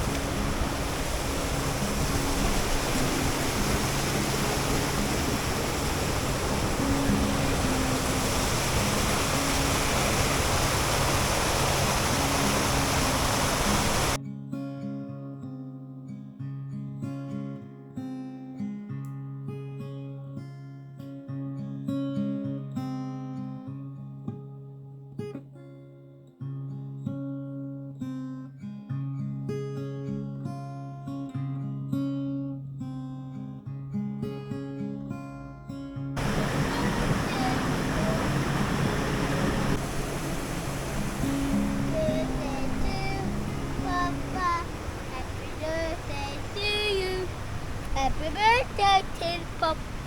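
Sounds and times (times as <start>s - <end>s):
strummed acoustic guitar: 0.0s - 5.6s, 6.2s - 9.5s, 14.2s - 50.0s
waterfall rushing: 0.0s - 14.2s, 36.2s - 50.0s.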